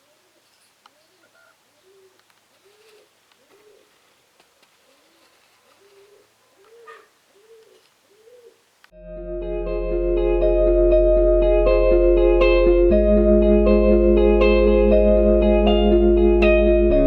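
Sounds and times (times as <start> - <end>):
faint bird calls: 0.0 - 8.9.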